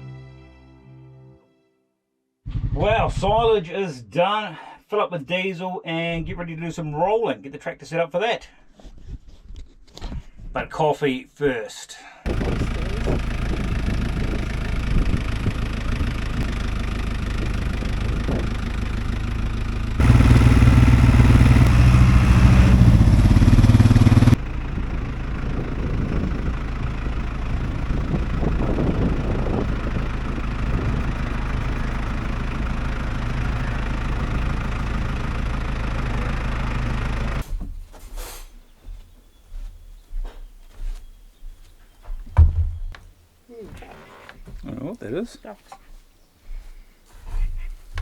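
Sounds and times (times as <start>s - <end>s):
tractor diesel engine running: 12.3s - 37.6s.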